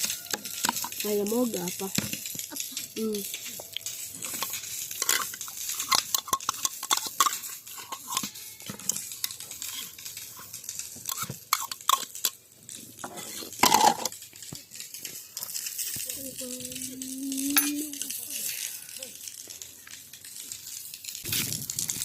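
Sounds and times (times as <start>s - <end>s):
metal utensils clinking on metal bowl: 0.0s - 12.4s, 13.0s - 14.2s, 17.2s - 19.0s.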